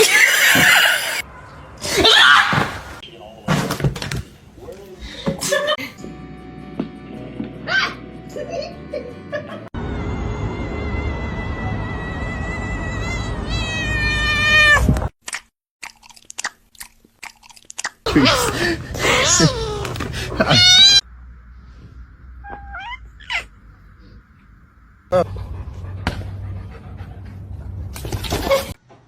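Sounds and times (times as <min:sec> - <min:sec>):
cats meowing and yowling: 0:12.8 - 0:14.9, 0:19.1 - 0:21.0, 0:22.4 - 0:23.5
chirping cat meows: 0:22.4 - 0:23.5.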